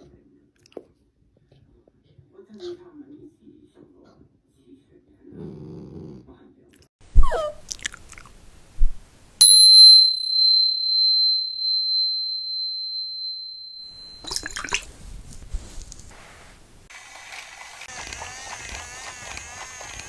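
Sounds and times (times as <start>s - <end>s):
small bell ringing: 9.4s - 14.8s
scuffling and handling noise: 13.9s - 16.9s.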